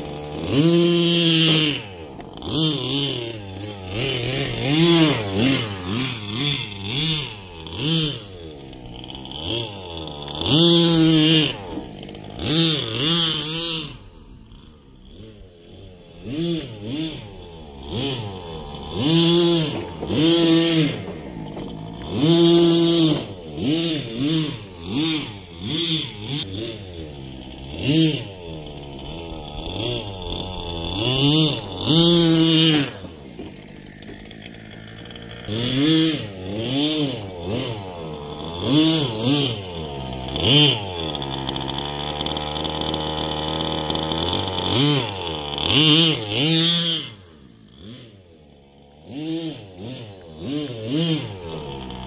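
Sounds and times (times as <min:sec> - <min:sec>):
small nitro engine revving: 0:00.0 - 0:52.0.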